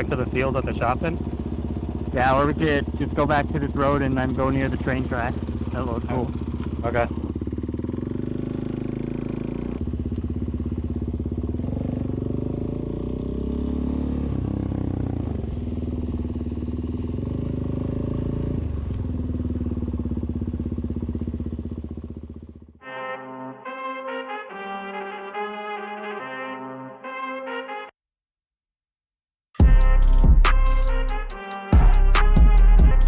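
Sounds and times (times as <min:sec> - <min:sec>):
dirt bike engine revving: 0:00.3 - 0:22.8.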